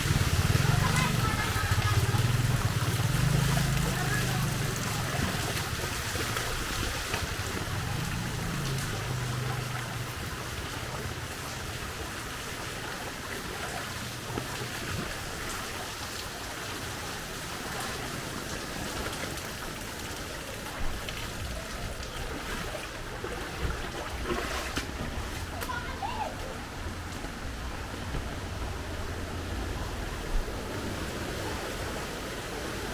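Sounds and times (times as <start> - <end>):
vehicle engine rumble: 0.0 - 32.8
rain falling: 0.0 - 32.9.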